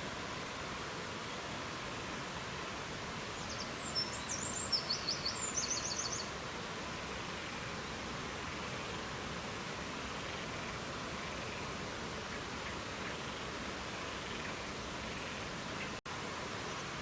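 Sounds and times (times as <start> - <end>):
songbird chirping and trilling: 3.4 - 6.3.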